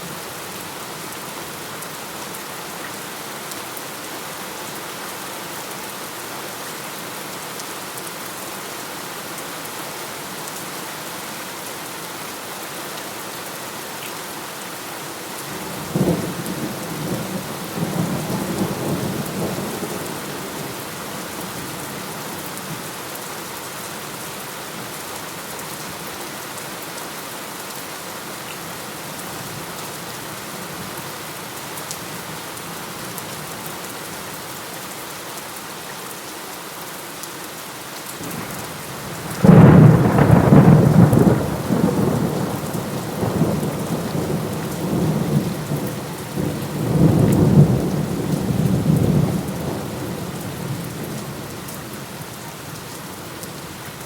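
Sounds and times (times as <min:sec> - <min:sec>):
steady rain falling: 0:00.0 - 0:54.0
rolling thunder: 0:39.1 - 0:50.2.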